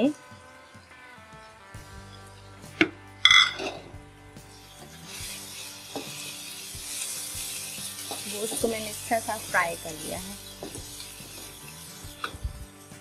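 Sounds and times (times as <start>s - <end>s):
meat frying in oil: 4.4s - 13.0s.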